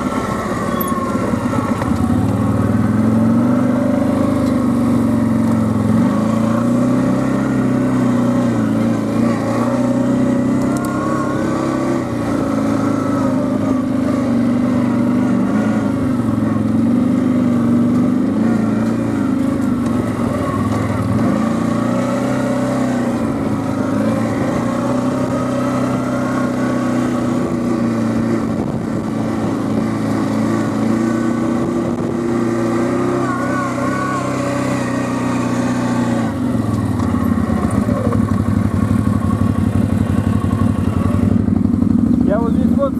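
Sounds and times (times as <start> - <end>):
quad bike engine revving: 0.0 - 42.9.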